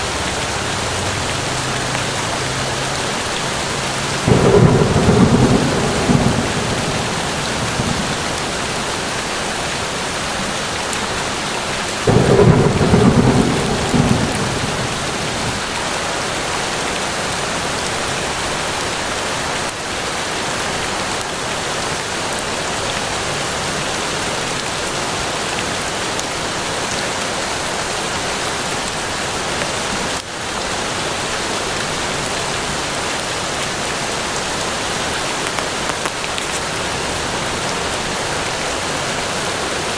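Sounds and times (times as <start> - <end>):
thunder rumbling: 0.0 - 16.1
steady rain falling: 0.0 - 39.9.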